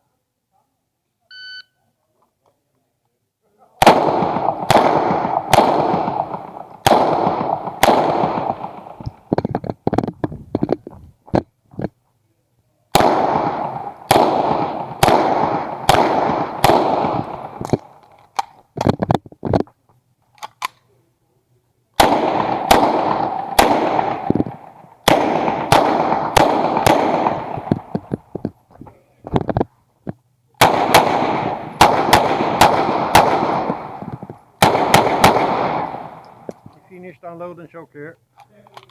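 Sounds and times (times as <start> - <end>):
pistol shots with echo: 3.8 - 9.3, 12.9 - 18.1, 22.0 - 28.3, 30.6 - 36.6.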